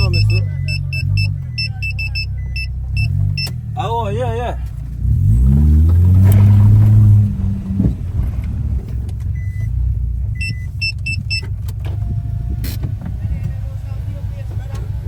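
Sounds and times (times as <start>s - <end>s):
high electronic beeps: 0.0s - 3.6s
car driving rumble: 0.0s - 15.0s.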